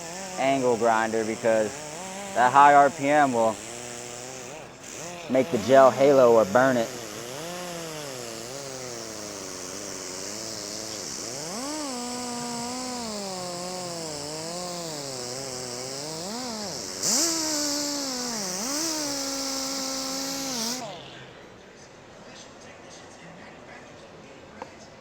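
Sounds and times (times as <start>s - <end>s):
buffing pad hissing on surface: 0.0s - 21.0s
angle grinder motor whine: 0.0s - 21.6s.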